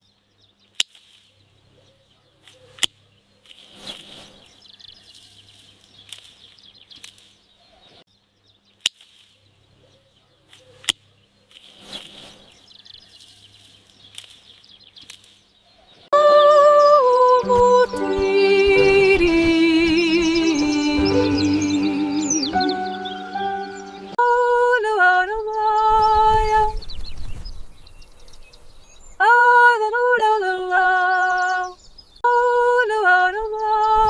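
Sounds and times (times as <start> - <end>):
birds chirping: 16.2 - 24.2
loud melodic music: 17.4 - 24.2.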